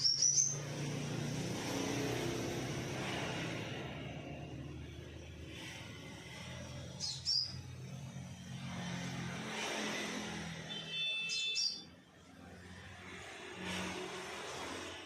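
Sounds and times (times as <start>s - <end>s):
bird chirping: 0.0s - 0.9s, 6.8s - 7.9s, 11.0s - 12.0s
low traffic rumble: 0.0s - 10.9s.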